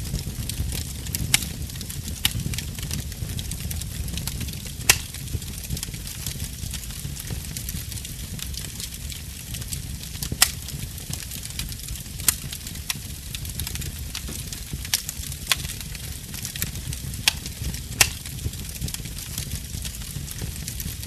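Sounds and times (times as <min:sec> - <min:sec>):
fire popping and snapping: 0:00.0 - 0:21.0
low rumble of flames: 0:00.0 - 0:21.0.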